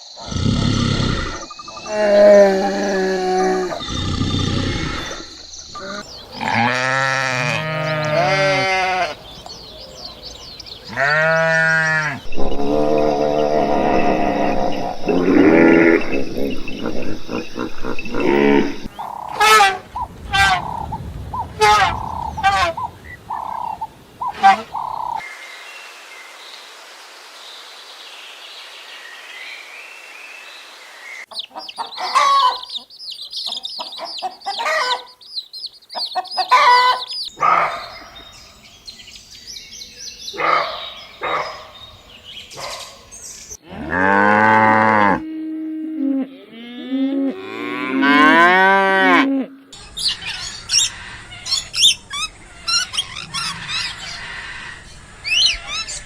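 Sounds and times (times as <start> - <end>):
high chirping: 0.0 - 6.5, 12.2 - 25.2, 31.3 - 43.6
high bird calls: 0.0 - 25.3, 31.2 - 43.6, 49.7 - 56.0
cow mooing: 0.2 - 9.2, 10.9 - 19.8, 43.6 - 49.6.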